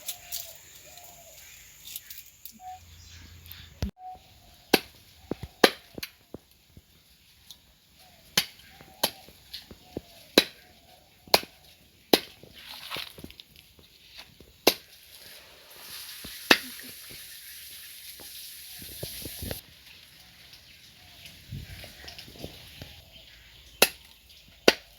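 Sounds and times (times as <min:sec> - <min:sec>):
steady hiss: 0:15.1 - 0:19.6.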